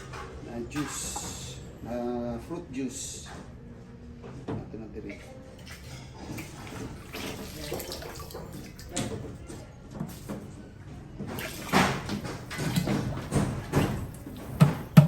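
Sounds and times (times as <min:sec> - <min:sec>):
liquid pouring and splashing: 0:05.6 - 0:09.0, 0:11.3 - 0:15.0.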